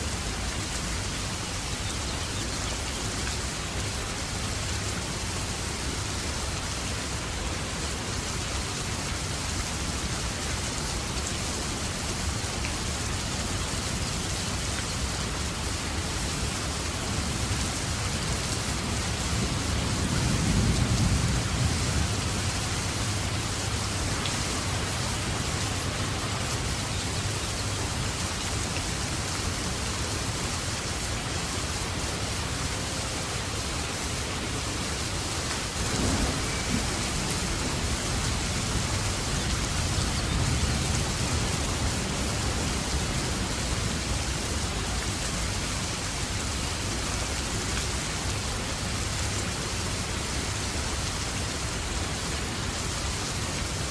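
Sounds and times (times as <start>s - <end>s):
steady rain: 0.0s - 53.9s
thunder rumble: 35.8s - 41.9s.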